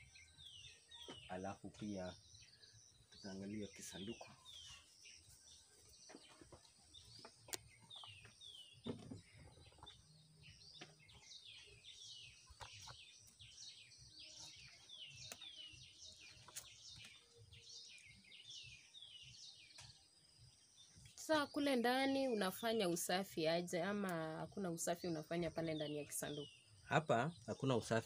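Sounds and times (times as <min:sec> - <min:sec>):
faint birdsong: 0:00.0 - 0:28.0
soft knocks of wooden box: 0:06.0 - 0:10.0.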